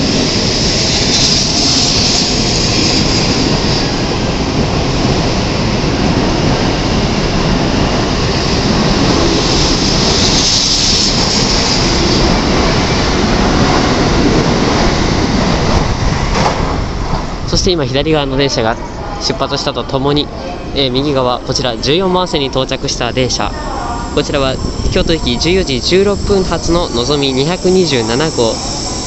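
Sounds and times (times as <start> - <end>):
high hiss: 0.0 - 4.0, 9.3 - 12.6, 22.3 - 29.0
train rolling past: 0.0 - 29.0.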